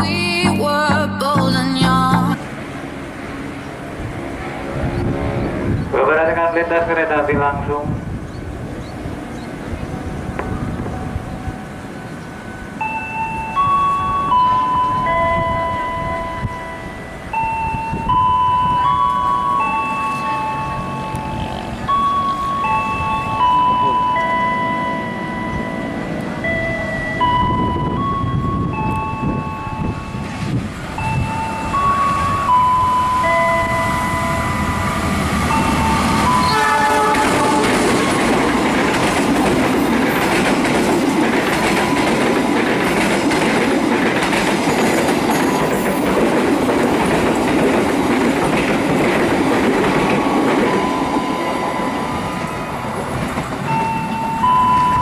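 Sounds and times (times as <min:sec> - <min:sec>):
train horn: 0:04.1 - 0:07.8, 0:31.2 - 0:38.4
electronic warning tone: 0:10.9 - 0:38.2, 0:50.1 - 0:52.8, 0:53.7 - 0:55.0
train wheels clattering over rails: 0:34.6 - 0:55.0.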